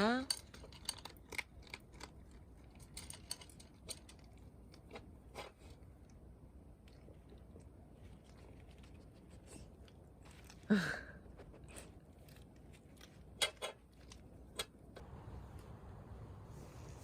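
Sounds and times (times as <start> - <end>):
dog crunching food: 0.5 - 10.7.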